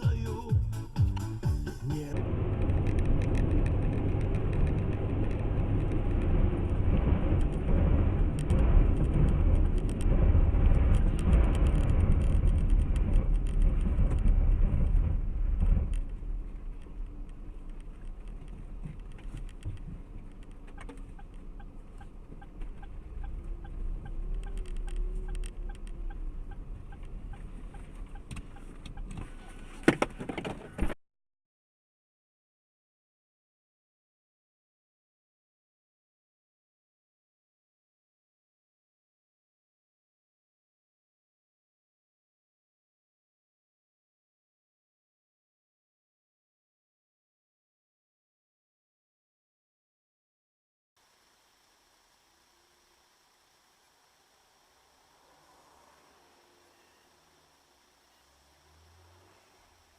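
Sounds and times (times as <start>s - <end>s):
car engine and road noise: 0.0s - 31.0s, 51.0s - 59.9s
faint ticks: 16.8s - 29.3s.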